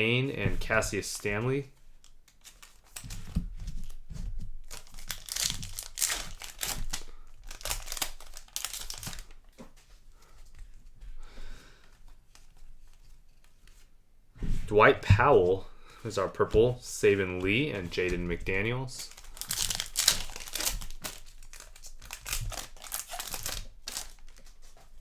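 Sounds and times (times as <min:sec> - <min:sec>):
cards rustling: 0:00.4 - 0:10.8, 0:15.3 - 0:25.0
wrapper tearing and crinkling: 0:02.0 - 0:04.0, 0:04.6 - 0:09.5, 0:19.0 - 0:24.9.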